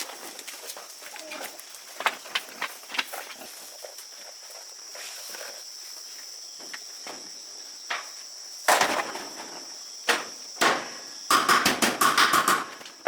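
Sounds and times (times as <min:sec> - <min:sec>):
high insect chirring: 0:00.0 - 0:13.0
sharp knocks: 0:10.1 - 0:12.8.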